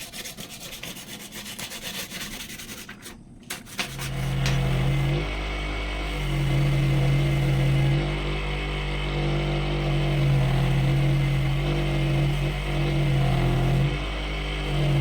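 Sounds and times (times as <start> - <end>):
power tool motor humming: 4.0 - 15.0.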